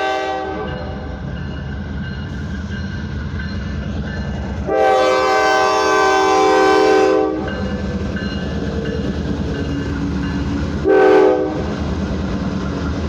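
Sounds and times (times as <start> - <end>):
locomotive air horn blasts: 0.0 - 1.0, 4.6 - 7.5, 10.8 - 11.7
low rumble of train: 0.0 - 13.0.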